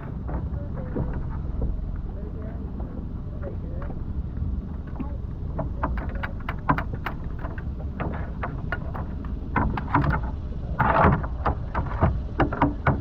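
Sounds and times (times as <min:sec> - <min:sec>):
small boat motor running: 0:00.0 - 0:13.0
sharp clicks and knocks: 0:04.8 - 0:13.0.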